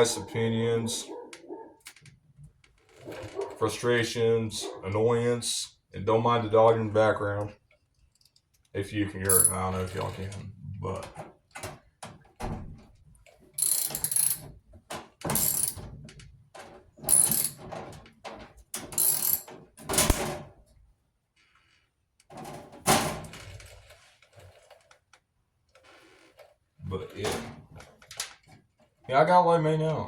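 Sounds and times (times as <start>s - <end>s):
socket ratchet clicking: 13.6s - 14.4s, 15.3s - 15.8s, 17.1s - 17.6s, 19.0s - 19.5s.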